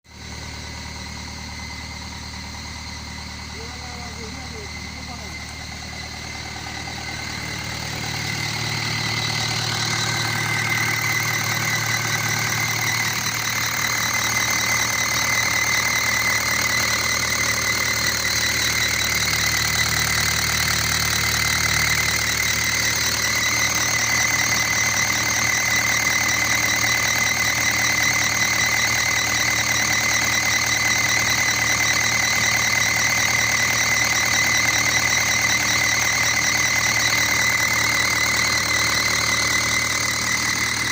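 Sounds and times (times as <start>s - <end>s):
diesel engine knocking: 0.0s - 40.9s
high whine: 0.4s - 20.1s.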